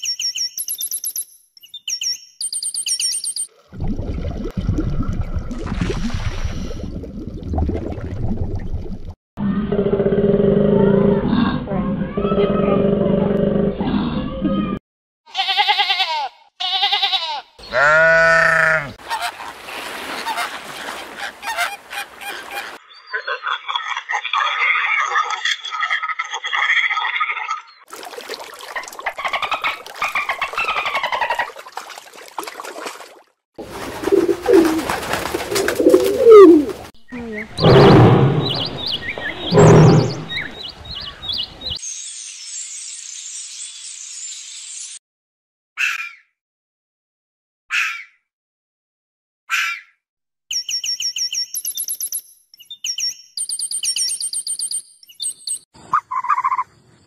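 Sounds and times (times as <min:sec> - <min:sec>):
sheep bleating: 0:15.3 - 0:19.0
pigeon cooing: 0:34.0 - 0:37.7
quieter bird calls: 0:35.8 - 0:41.8.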